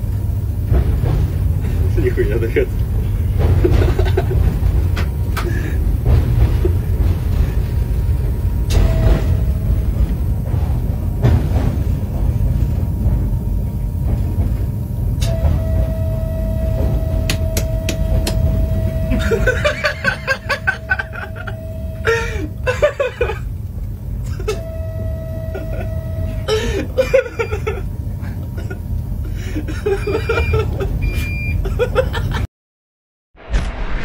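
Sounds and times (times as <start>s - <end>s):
train rumble: 0.0s - 32.4s
train horn blast: 8.7s - 10.0s, 15.2s - 22.2s, 24.4s - 26.6s.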